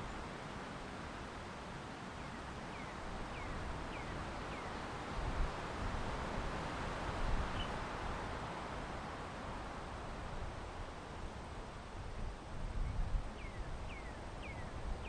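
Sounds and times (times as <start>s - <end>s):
wind: 0.0s - 15.0s
wind gusts on microphone: 3.1s - 15.0s.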